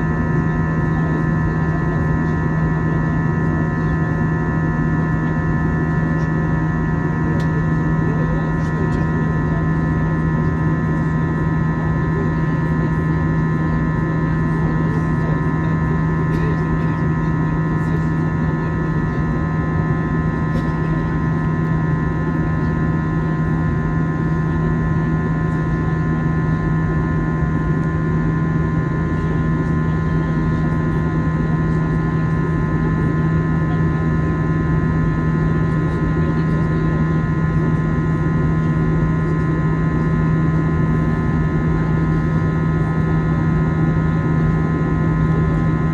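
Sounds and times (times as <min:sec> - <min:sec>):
airliner cabin hum: 0:00.0 - 0:45.9.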